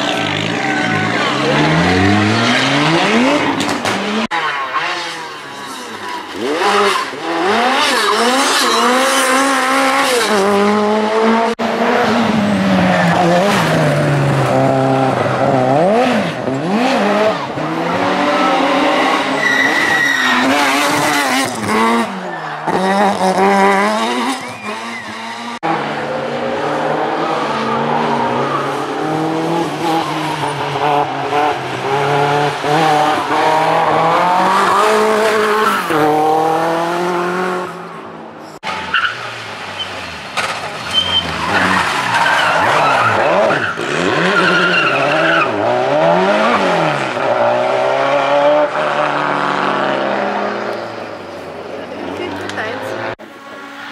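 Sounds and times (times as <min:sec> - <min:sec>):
rally car engines revving: 0:00.0 - 0:53.9.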